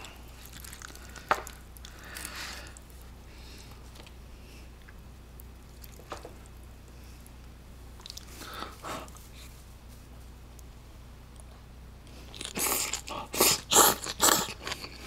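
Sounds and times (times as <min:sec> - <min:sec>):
person chewing: 0:00.0 - 0:03.1, 0:08.0 - 0:09.5, 0:12.1 - 0:15.0
wet mouth sounds: 0:12.3 - 0:15.0.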